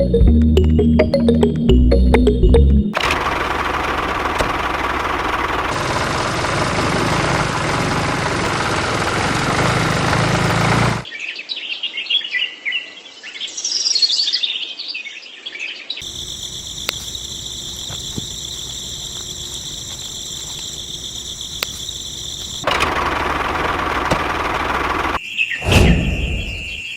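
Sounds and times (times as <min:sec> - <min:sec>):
dense running noise: 0:03.0 - 0:11.0, 0:16.0 - 0:25.2
birds chirping: 0:16.0 - 0:26.9.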